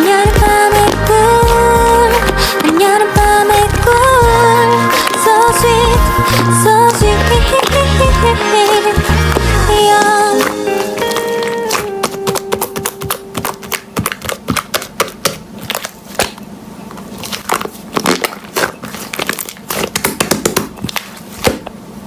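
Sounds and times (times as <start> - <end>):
background music: 0.0 - 13.7
slime clicking and crackling: 5.0 - 16.4, 17.0 - 21.6.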